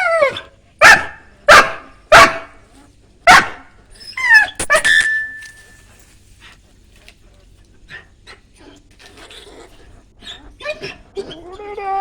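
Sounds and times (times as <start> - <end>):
dog wavering cry: 0.0 - 1.1, 4.0 - 5.4, 10.2 - 12.0
dog barking: 0.3 - 2.6, 3.2 - 3.8, 4.4 - 5.3.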